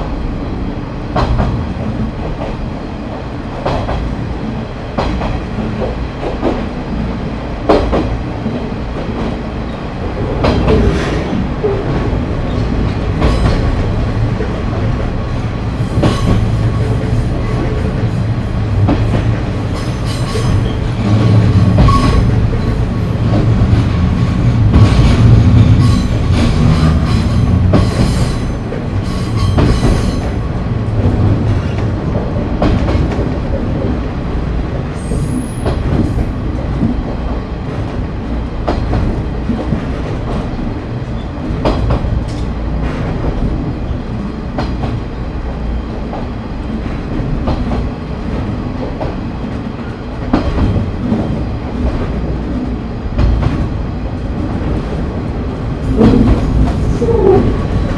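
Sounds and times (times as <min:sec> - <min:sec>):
rumble of train wheels: 0:00.0 - 0:57.9.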